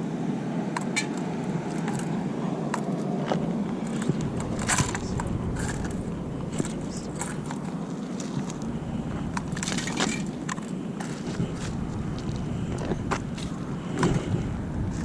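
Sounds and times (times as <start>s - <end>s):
steady low rumble: 0.0s - 15.0s
crunches and scrapes in gravel: 1.7s - 15.0s.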